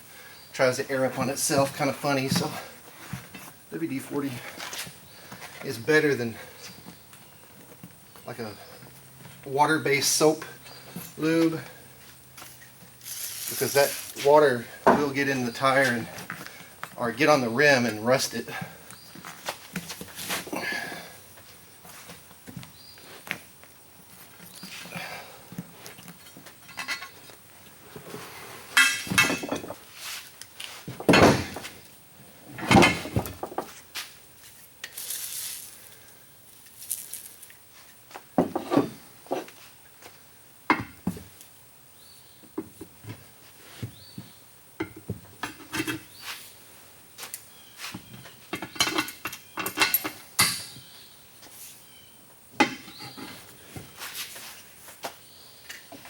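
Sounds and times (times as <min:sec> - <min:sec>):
rubber and metal knocks and scrapes: 0:38.4 - 0:39.6.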